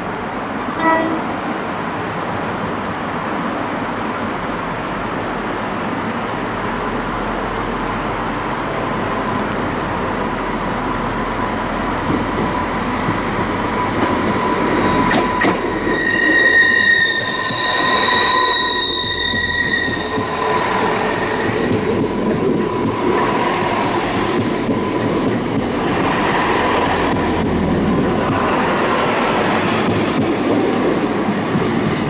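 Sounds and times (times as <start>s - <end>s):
train rumbling on rails: 0.0s - 32.0s
train wheels squealing: 11.2s - 22.1s.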